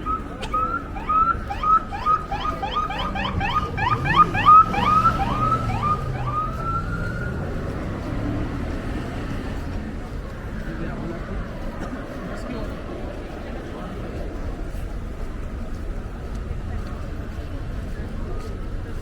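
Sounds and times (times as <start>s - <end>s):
low street rumble: 0.0s - 19.0s
electronic siren yelping and wailing: 0.8s - 6.9s.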